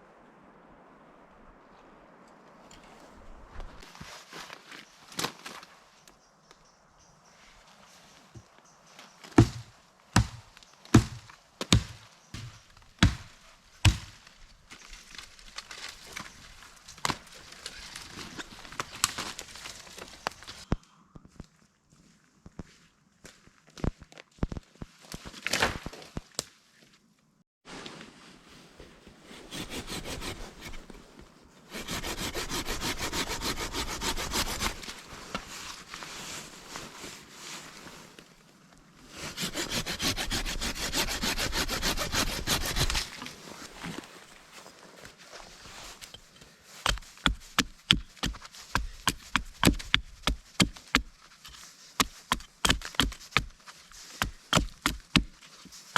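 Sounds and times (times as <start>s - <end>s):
heavy strikes on wood: 11.0s - 14.1s
rustling with small crackles: 12.1s - 22.8s
hand saw cutting wood: 29.5s - 30.8s, 31.7s - 35.0s, 39.1s - 43.4s, 46.8s - 55.3s.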